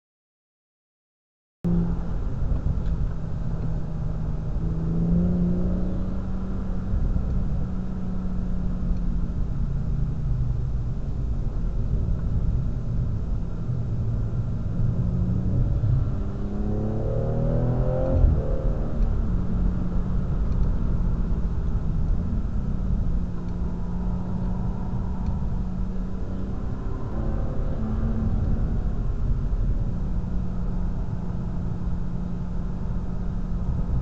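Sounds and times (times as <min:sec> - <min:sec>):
car engine running: 0:01.7 - 0:16.9, 0:17.8 - 0:34.0.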